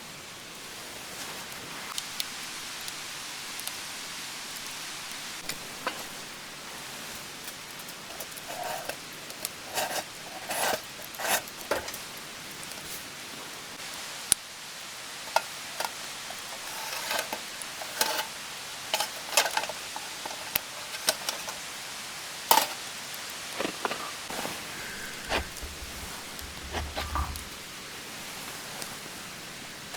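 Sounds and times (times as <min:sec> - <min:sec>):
steady hiss: 0:00.0 - 0:29.9
light knocks and clatters: 0:23.6 - 0:27.6.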